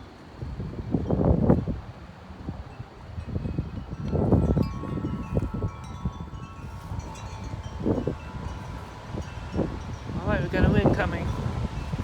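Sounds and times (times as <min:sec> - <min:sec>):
wind buffeting microphone: 0:00.0 - 0:12.0
wind chimes ringing: 0:02.6 - 0:12.0.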